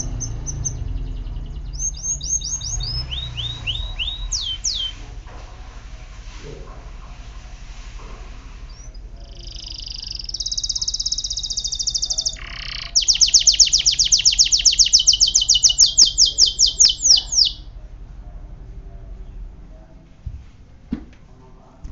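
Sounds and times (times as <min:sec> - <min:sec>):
canary singing: 0:00.0 - 0:05.0, 0:08.6 - 0:17.7.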